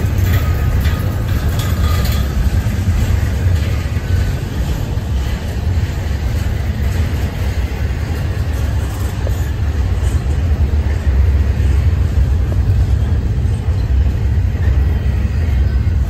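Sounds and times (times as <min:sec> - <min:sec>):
freight train rumbling past: 0:00.0 - 0:16.0.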